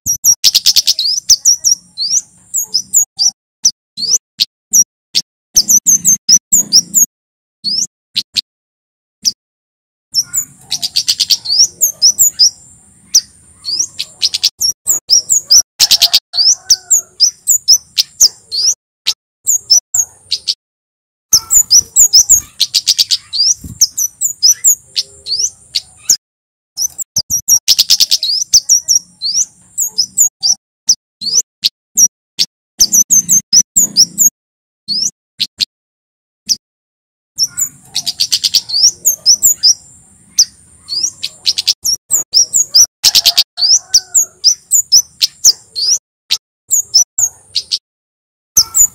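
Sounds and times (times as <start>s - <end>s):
songbird rapid chirping: 0.0s - 8.5s, 10.1s - 20.6s, 21.3s - 26.2s, 26.8s - 35.7s, 37.4s - 47.8s, 48.6s - 48.9s.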